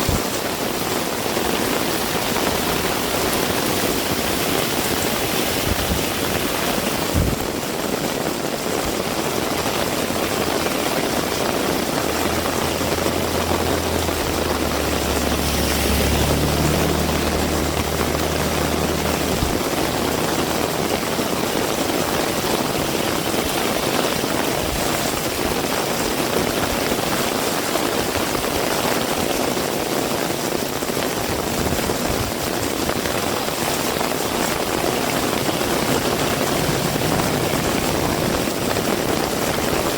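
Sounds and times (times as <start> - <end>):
heavy rain: 0.0 - 39.9
vehicle engine humming: 8.5 - 24.8, 34.0 - 39.9.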